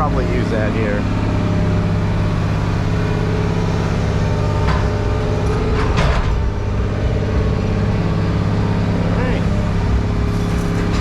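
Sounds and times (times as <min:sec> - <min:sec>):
engine idling: 0:00.0 - 0:11.0
loud clatter: 0:01.2 - 0:08.6, 0:09.5 - 0:11.0
metal scrape or clank: 0:10.3 - 0:11.0.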